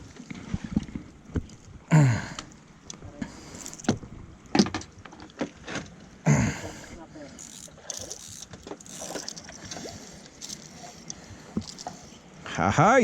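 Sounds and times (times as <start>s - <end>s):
knocks and clicks on wooden boat: 0.7s - 1.6s, 3.8s - 6.0s.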